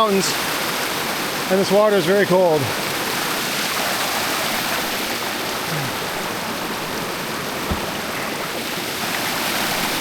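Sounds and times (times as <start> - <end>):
creek water rushing: 0.0 - 10.0
short knock: 7.6 - 8.0.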